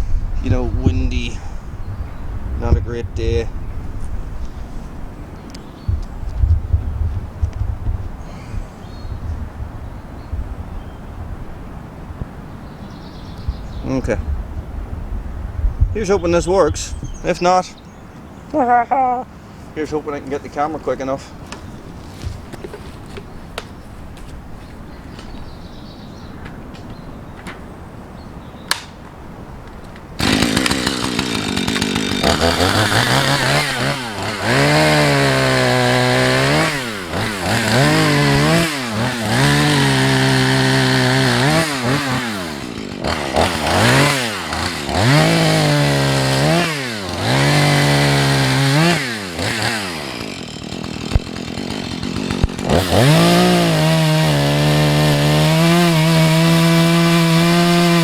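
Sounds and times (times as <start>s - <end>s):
chainsaw cutting tree trunk: 30.2s - 58.0s.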